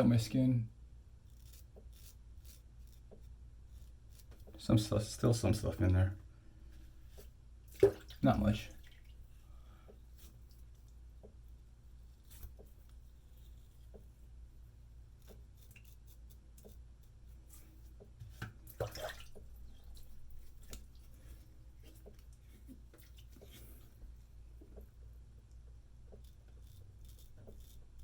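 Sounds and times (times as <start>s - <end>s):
straight razor scraping skin: 1.2s - 4.7s, 11.5s - 14.0s, 15.0s - 17.8s, 26.0s - 28.0s.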